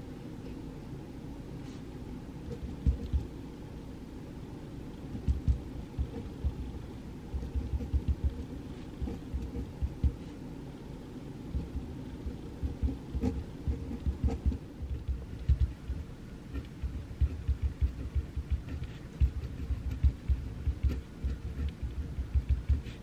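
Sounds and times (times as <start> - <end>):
pencil writing on paper: 2.5 - 3.2, 5.2 - 6.7, 7.3 - 10.4, 11.6 - 23.0.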